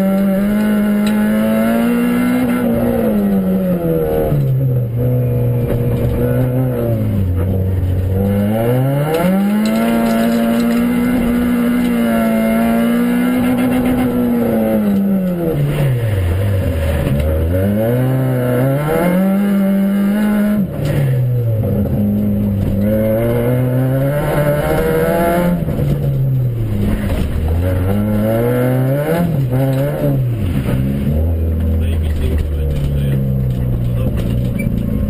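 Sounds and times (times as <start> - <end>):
rally car engine revving: 0.0 - 35.0
rumble of tyres on gravel: 4.0 - 12.0, 13.4 - 18.1, 25.6 - 28.4, 29.4 - 35.0.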